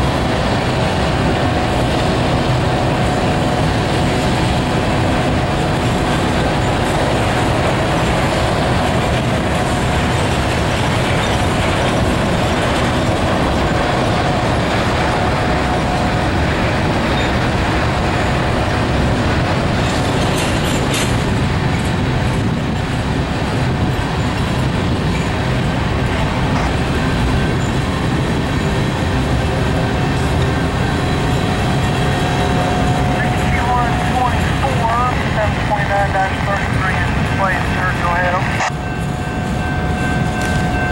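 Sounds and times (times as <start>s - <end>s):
freight train wheels rumbling on rails: 0.0s - 40.9s.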